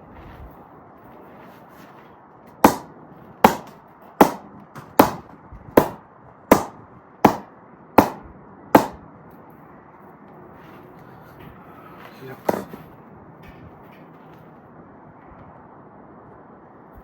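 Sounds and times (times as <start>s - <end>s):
cricket bat knocks with ring: 12.5s - 12.8s.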